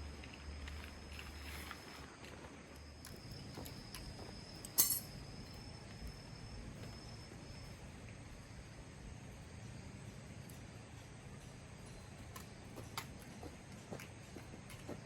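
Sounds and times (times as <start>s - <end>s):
sharp ringing clink: 4.6s - 5.6s.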